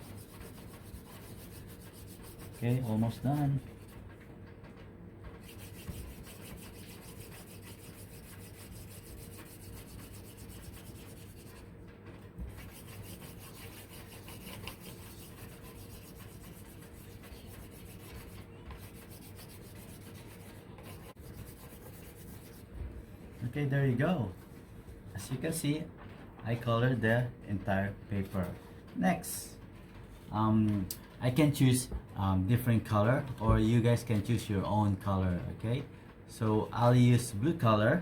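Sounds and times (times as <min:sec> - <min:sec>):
crayon rasping on paper: 0:00.0 - 0:04.0, 0:05.4 - 0:11.6, 0:12.6 - 0:22.6.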